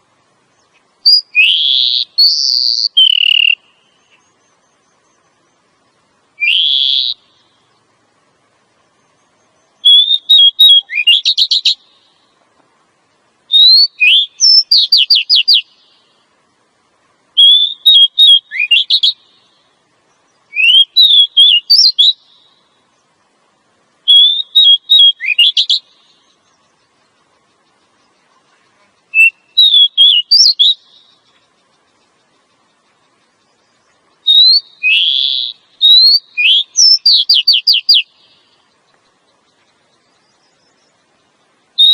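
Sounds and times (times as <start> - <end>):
bird whistled chirps: 1.0 - 5.6, 6.4 - 7.5, 9.0 - 12.1, 13.5 - 16.1, 17.4 - 19.6, 20.3 - 22.6, 24.1 - 26.5, 29.1 - 31.3, 33.8 - 38.6.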